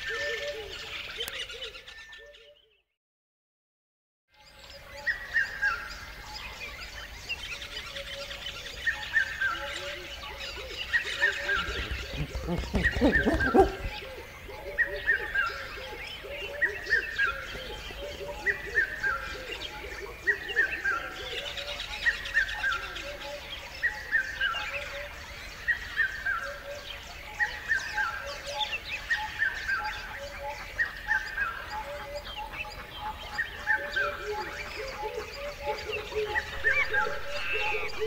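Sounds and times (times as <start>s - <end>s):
faint birds calling: 7.2s - 38.0s
bird falling call: 11.2s - 14.2s, 36.4s - 38.0s.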